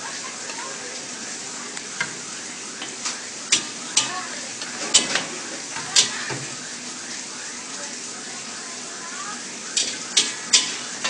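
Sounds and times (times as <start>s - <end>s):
noodles sizzling in a wok: 0.0s - 11.0s
spatula scraping a wok: 5.8s - 6.5s, 9.8s - 11.0s.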